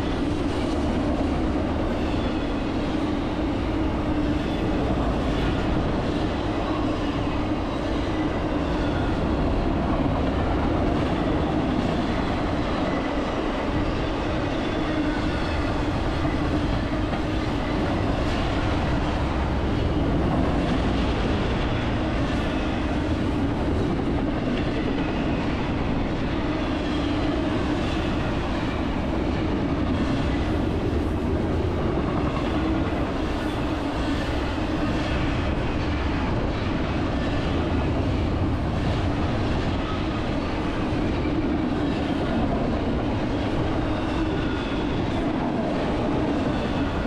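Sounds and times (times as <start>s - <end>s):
freight train rolling past: 0.0s - 47.0s.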